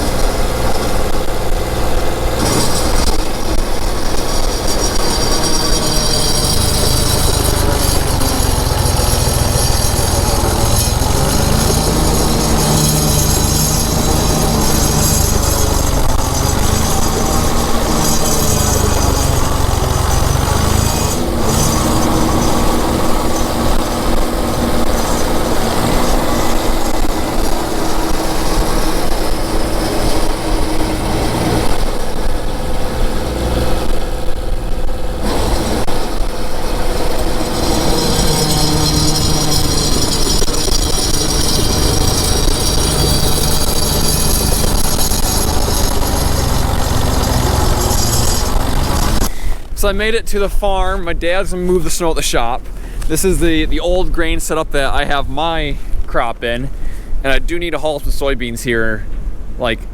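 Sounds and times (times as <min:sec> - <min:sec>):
tractor engine under load: 0:00.0 - 0:59.9.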